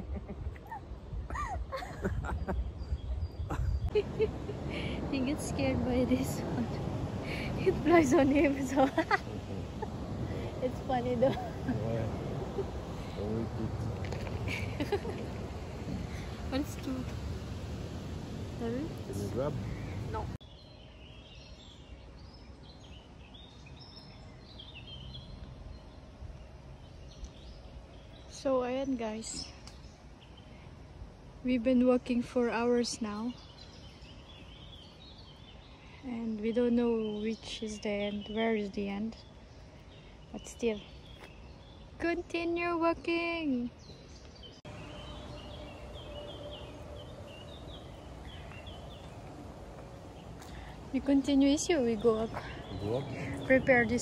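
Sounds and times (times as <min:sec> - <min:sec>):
low background rumble: 0:00.0 - 0:20.4, 0:44.6 - 0:54.0
songbirds singing: 0:00.0 - 0:54.0
small bird singing: 0:31.7 - 0:54.0.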